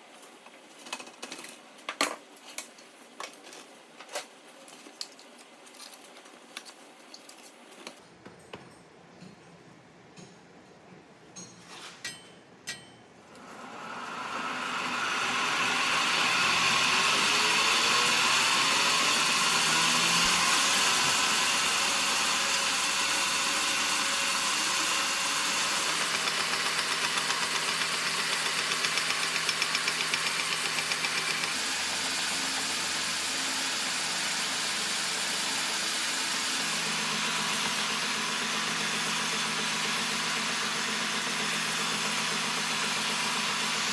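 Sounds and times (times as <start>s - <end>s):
electric grinder grinding blade: 13.4s - 43.9s.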